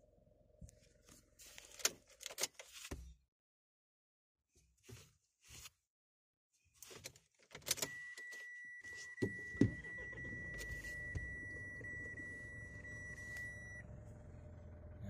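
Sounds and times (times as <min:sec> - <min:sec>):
high warning beep: 0:07.8 - 0:13.8
diesel engine starting and idling: 0:09.4 - 0:15.0.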